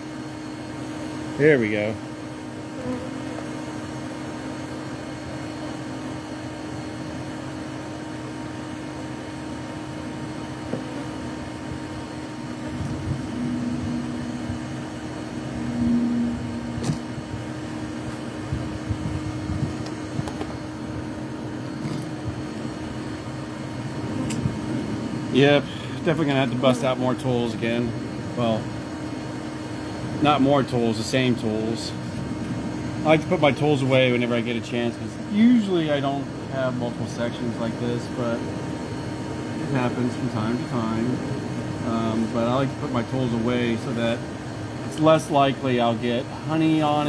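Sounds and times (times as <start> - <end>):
background hum: 0.0 - 47.0
honeybees buzzing: 2.0 - 42.5
bee buzzing close by: 2.5 - 4.4.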